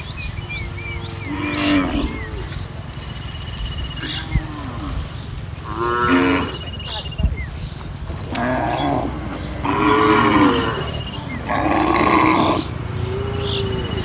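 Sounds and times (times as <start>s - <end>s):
cattle mooing: 0.2s - 2.6s, 4.0s - 6.7s, 8.2s - 14.0s.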